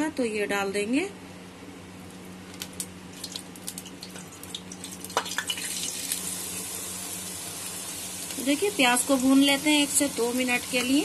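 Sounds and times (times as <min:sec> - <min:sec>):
onion paste sizzling in oil: 0:03.1 - 0:11.0.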